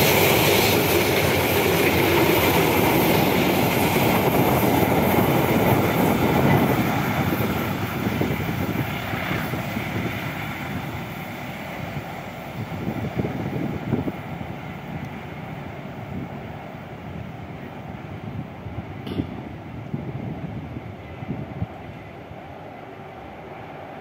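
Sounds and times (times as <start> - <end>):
train wheels clattering on track: 0.0 - 15.9, 18.9 - 20.5.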